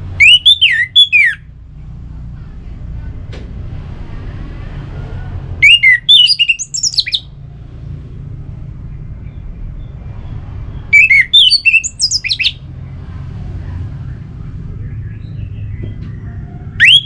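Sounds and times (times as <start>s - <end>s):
low background rumble: 0.0s - 17.0s
thrush singing: 4.3s - 7.4s, 10.6s - 17.0s.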